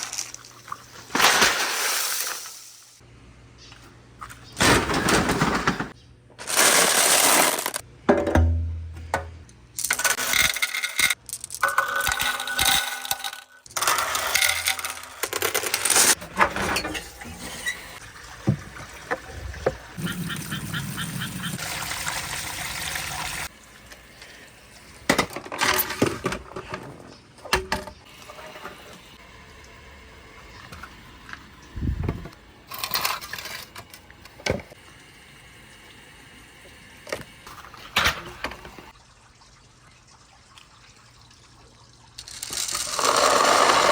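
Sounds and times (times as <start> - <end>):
marbles rolling down wooden run: 42.2 - 43.9.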